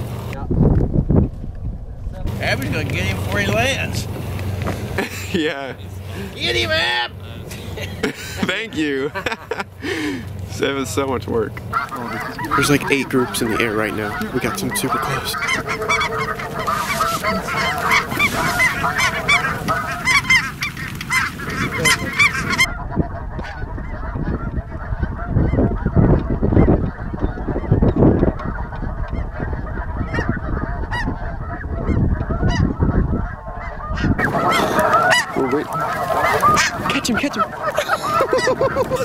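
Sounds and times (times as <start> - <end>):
low rumbling noise: 0.0 - 39.0
geese honking: 2.3 - 39.0.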